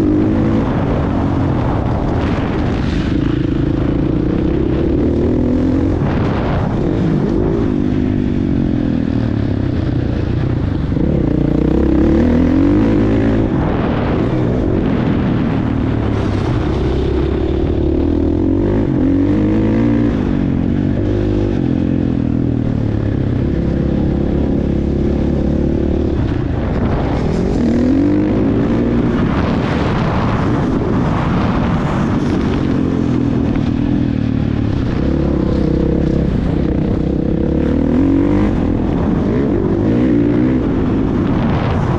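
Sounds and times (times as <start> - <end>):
motocross bike engine revving: 10.8 - 33.7, 34.5 - 41.7.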